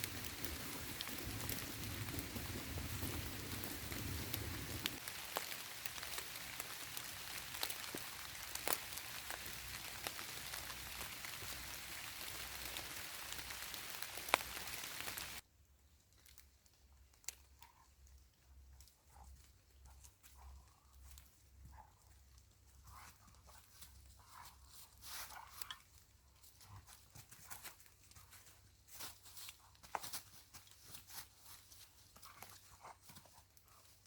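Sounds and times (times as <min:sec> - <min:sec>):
steady rain falling: 0:00.0 - 0:15.4.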